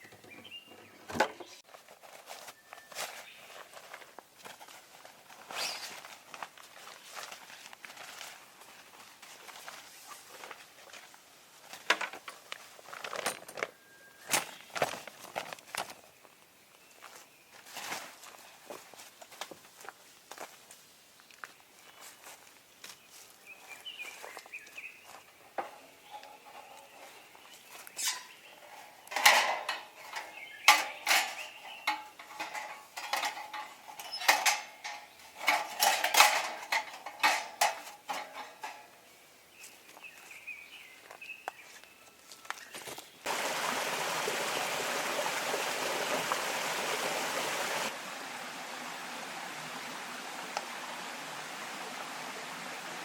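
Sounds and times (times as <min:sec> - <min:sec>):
metal cookware clinking: 0:29.1 - 0:39.0
stream water rushing: 0:43.3 - 0:53.0.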